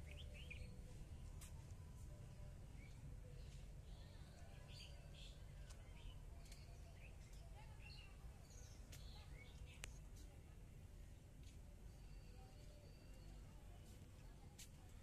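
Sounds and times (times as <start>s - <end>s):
small birds chirping: 0.0s - 1.5s, 2.7s - 10.3s.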